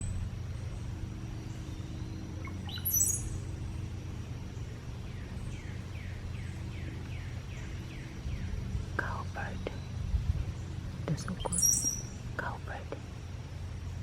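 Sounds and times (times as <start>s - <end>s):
bird gurgling song with squeal: 1.4s - 3.6s, 11.3s - 12.2s.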